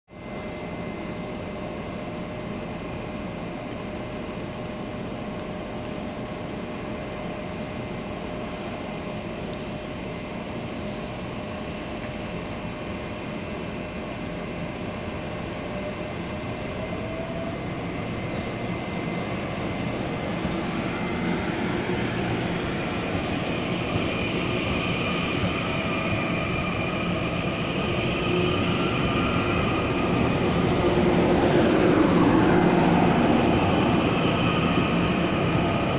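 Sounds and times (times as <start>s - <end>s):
train running noise: 0.1s - 35.9s.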